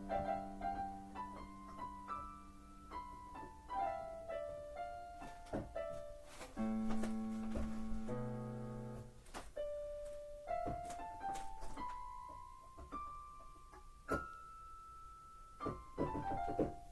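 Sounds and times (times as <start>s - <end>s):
piano music: 0.0s - 16.9s.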